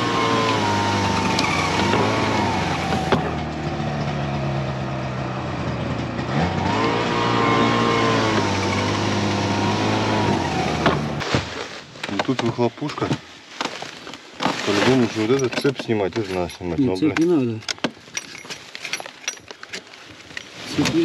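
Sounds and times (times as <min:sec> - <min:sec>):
small petrol engine running: 0:00.0 - 0:11.2.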